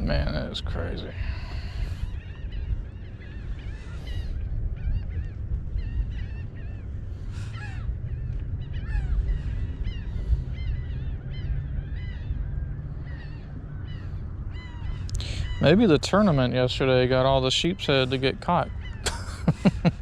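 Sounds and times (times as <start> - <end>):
birds calling: 0.0 - 20.0
low steady rumble: 0.0 - 20.0.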